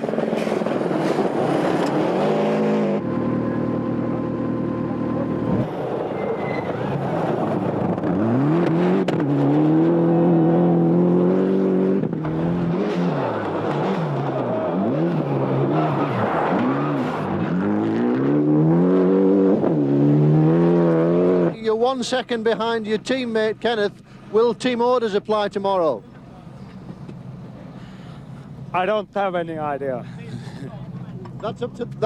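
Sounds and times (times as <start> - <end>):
rally car engines revving: 0.0 - 21.7.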